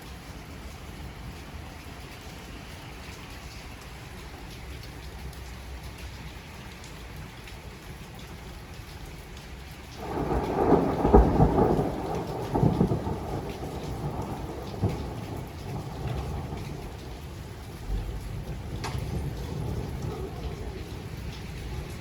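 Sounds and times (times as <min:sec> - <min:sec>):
steady rain falling: 0:00.0 - 0:22.0
thunder rumbling: 0:10.0 - 0:22.0.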